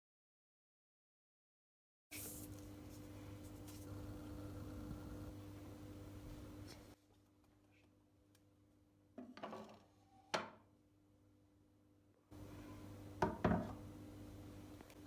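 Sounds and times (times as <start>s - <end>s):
faint electrical hum: 2.1s - 15.0s
household objects knocking: 13.2s - 13.8s.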